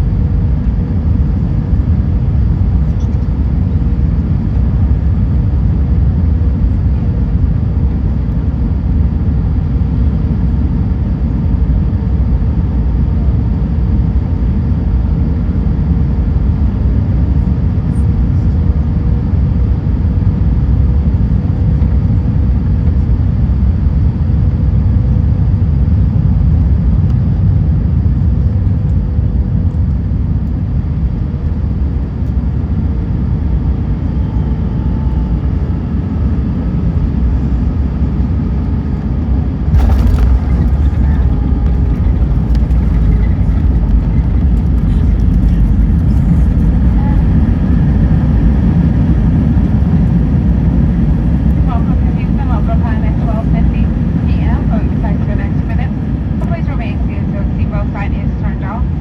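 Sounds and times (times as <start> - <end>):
airplane cabin rumble: 0.0 - 59.0
faint steady hum: 25.1 - 59.0.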